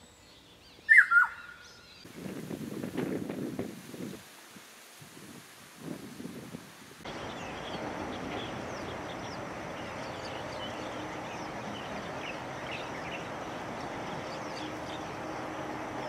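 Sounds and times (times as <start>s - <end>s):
small birds chirping: 0.0s - 2.1s, 7.0s - 16.0s.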